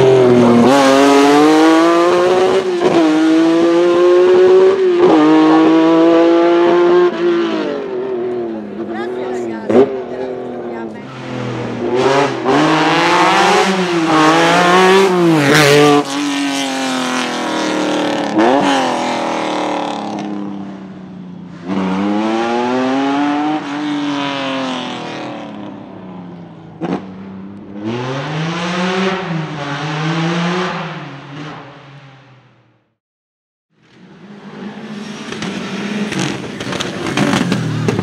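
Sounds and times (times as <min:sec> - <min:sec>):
rally car engine revving: 0:00.0 - 0:32.3, 0:33.8 - 0:38.0
sharp cracks from exhaust: 0:35.1 - 0:38.0.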